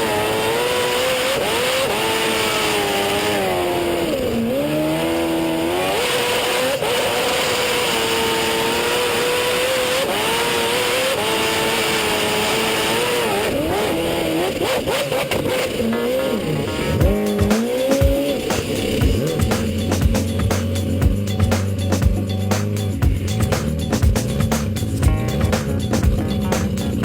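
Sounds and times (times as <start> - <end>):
boat engine revving: 0.0 - 27.0
music with thumping beat: 16.8 - 27.0.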